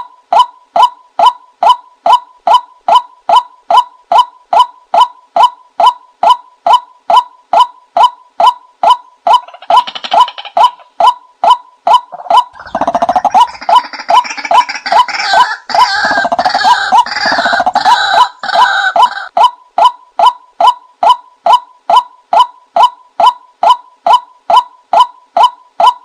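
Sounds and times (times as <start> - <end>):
dense chattering bird chorus: 12.1 - 19.2.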